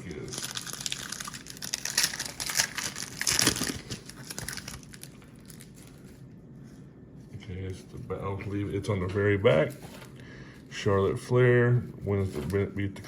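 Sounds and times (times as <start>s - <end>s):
card pack wrapper crinkling: 0.0s - 6.2s.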